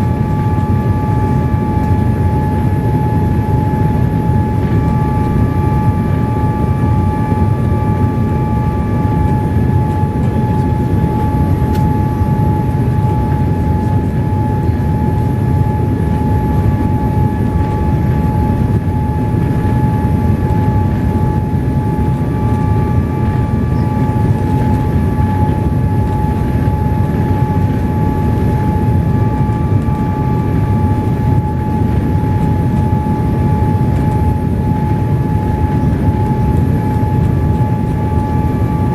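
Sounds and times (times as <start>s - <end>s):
constant whine: 0.0s - 38.9s
jet engine and airflow rumble: 0.0s - 38.9s.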